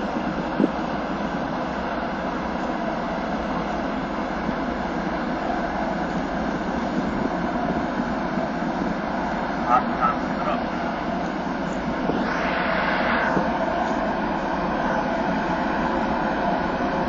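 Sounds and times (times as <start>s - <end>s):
ship engines rumbling: 0.0s - 17.0s
rushing noise: 4.4s - 17.0s.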